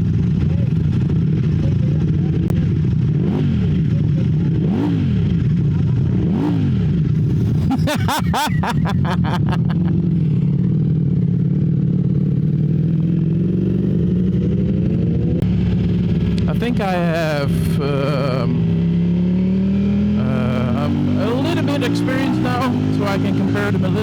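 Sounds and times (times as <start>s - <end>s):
motorcycle engine revving: 0.0s - 24.0s
exhaust popping: 2.0s - 10.3s, 13.6s - 19.0s, 19.8s - 24.0s.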